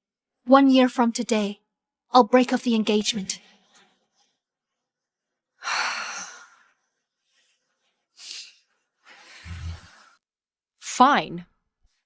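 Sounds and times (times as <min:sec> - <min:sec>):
person breathing heavily: 0:08.2 - 0:10.2.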